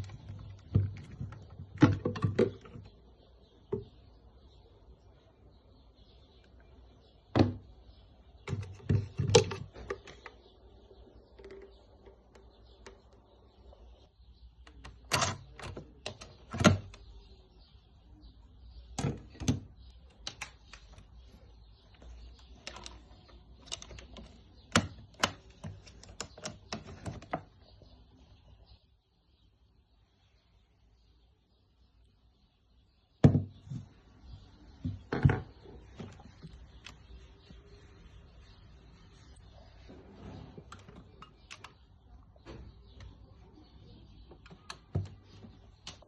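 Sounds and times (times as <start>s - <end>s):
vacuum parts clicking and knocking: 0.0s - 3.0s, 8.4s - 10.4s, 14.6s - 17.1s, 19.0s - 21.2s, 21.9s - 27.6s, 34.8s - 37.0s.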